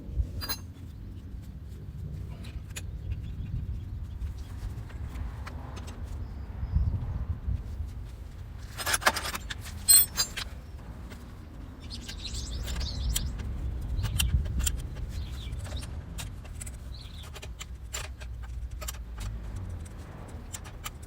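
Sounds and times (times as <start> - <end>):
short metallic ring: 0.4 - 0.7
metal tools clinking: 0.4 - 0.8, 8.6 - 10.7.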